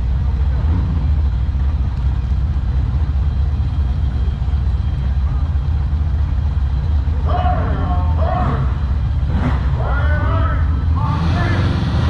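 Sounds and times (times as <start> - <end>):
car engine running: 0.0 - 12.0
faint voices: 3.2 - 12.0.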